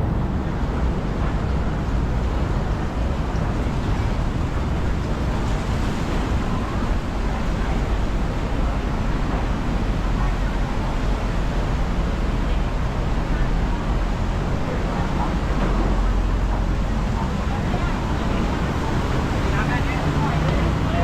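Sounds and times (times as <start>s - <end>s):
boat engine drone: 0.0s - 21.0s
rushing water: 0.0s - 21.0s.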